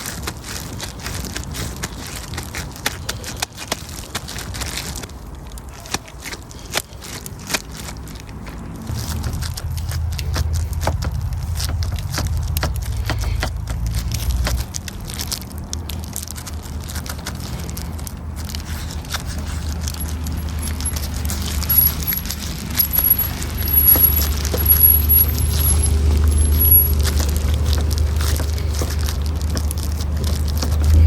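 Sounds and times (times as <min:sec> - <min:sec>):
campfire crackling: 0:00.0 - 0:31.0
low rumble: 0:08.8 - 0:31.0.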